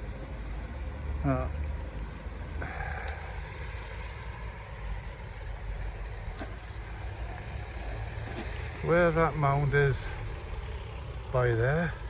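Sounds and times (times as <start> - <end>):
road traffic rumble: 0.0 - 12.0
faint clicks: 3.0 - 3.2.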